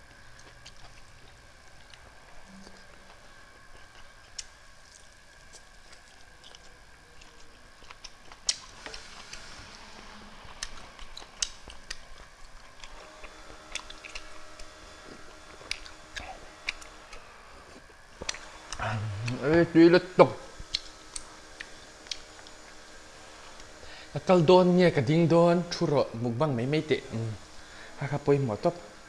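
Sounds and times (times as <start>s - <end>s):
chewing and lip-smacking: 0.0s - 19.4s, 20.6s - 22.7s
mouth clicks: 18.2s - 19.5s.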